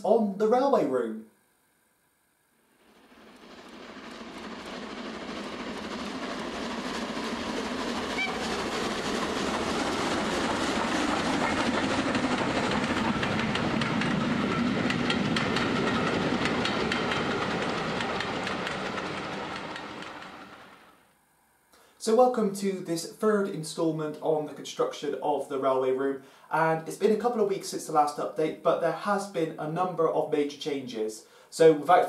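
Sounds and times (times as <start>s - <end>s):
train wheels clattering over rail joints: 4.5s - 20.8s.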